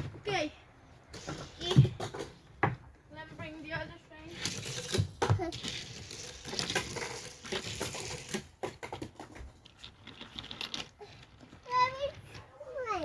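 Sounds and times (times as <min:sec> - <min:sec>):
toy cars clicking and clattering: 0:01.1 - 0:02.6, 0:03.6 - 0:13.0.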